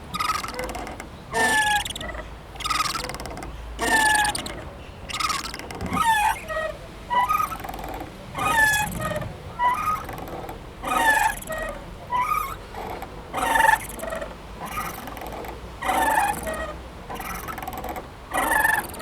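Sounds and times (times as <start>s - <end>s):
swing chains squeaking: 0.0s - 19.0s.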